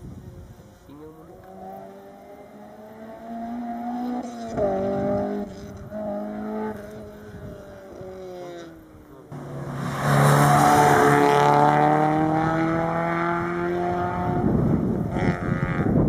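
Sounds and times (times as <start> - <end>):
rally car engine accelerating: 1.4 - 16.0.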